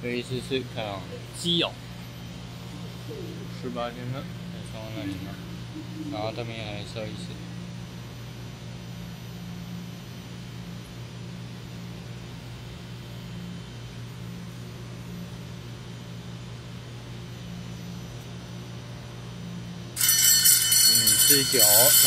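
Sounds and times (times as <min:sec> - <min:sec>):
electric train hum and hiss: 0:00.0 - 0:22.0
electric bell ringing: 0:20.0 - 0:22.0.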